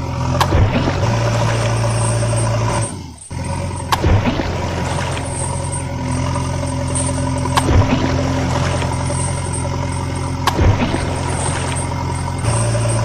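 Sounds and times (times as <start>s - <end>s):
engine drone: 0.0s - 13.0s.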